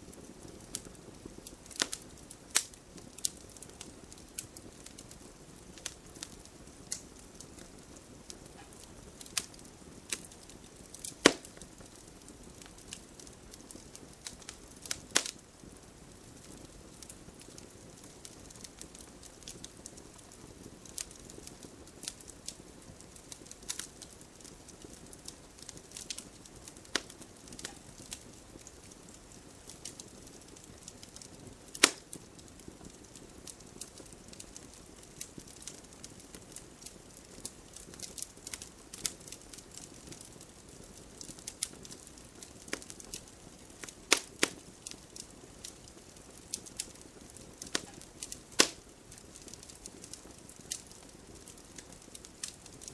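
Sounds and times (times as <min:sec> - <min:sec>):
campfire crackling and popping: 0:00.0 - 0:52.9
low steady fire hiss: 0:00.0 - 0:52.9
fire sharp snaps: 0:00.1 - 0:52.9.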